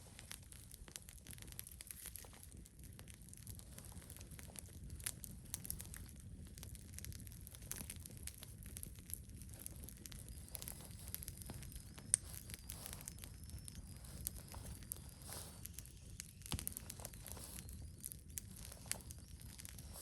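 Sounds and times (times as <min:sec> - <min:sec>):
wood fire crackling and popping: 0:00.0 - 0:20.0
faint high whistle: 0:10.3 - 0:20.0.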